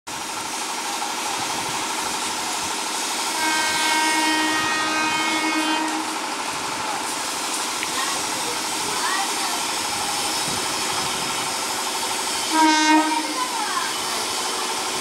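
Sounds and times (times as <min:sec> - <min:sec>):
train running on track: 0:00.1 - 0:15.0
train horn blast: 0:03.2 - 0:06.4, 0:12.4 - 0:14.0.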